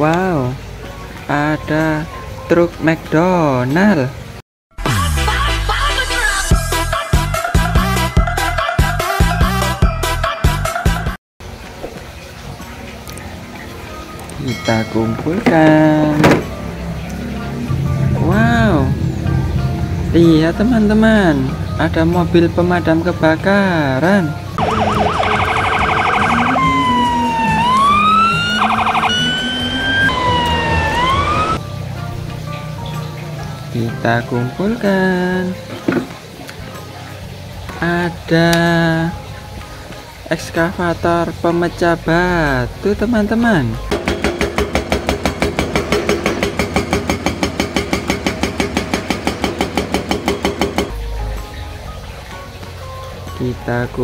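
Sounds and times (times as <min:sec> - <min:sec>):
fire truck siren: 0:24.6 - 0:31.6
hydraulic breaker hammering rock: 0:43.9 - 0:50.9.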